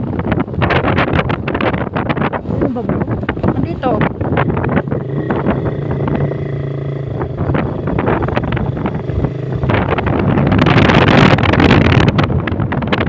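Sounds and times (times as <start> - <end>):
wind on microphone: 0.0 - 13.0
motorcycle engine running: 2.8 - 13.0.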